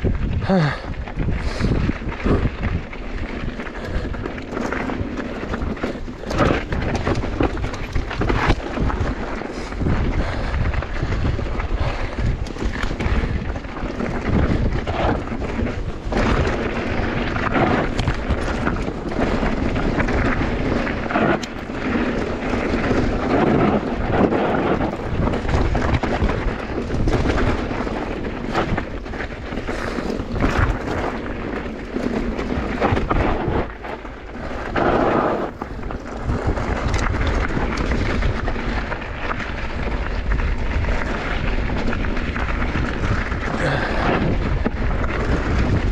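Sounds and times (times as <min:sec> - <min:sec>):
bike frame rattling and knocking: 0:00.0 - 0:45.9
wind rumble on microphone: 0:00.0 - 0:45.9.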